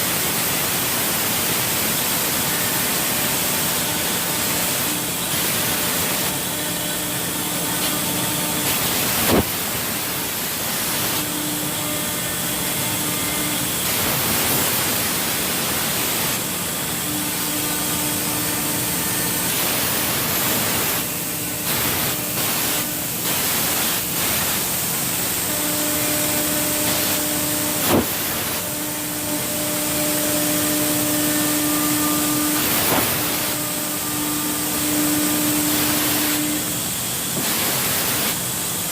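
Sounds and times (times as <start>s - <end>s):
cnc machine cutting: 0.0s - 38.9s.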